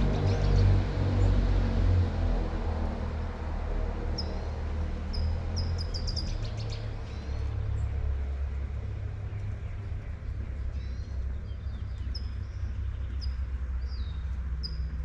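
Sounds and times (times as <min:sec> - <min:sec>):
songbird chirping and trilling: 0:00.0 - 0:01.7, 0:04.1 - 0:08.6, 0:09.2 - 0:15.0
street traffic rumble: 0:00.0 - 0:15.0.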